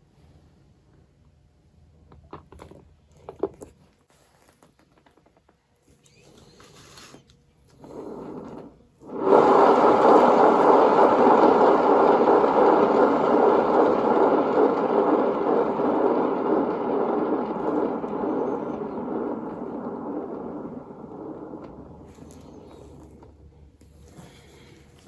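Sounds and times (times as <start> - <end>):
hairdryer blowing: 8.0 - 23.3.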